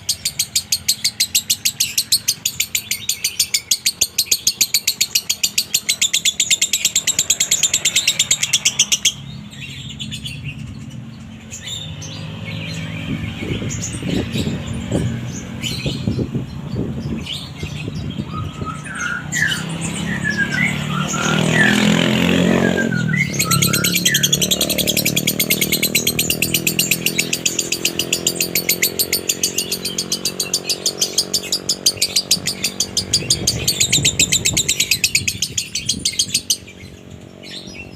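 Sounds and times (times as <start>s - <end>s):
lovebird chirping and chattering: 0.0s - 37.9s.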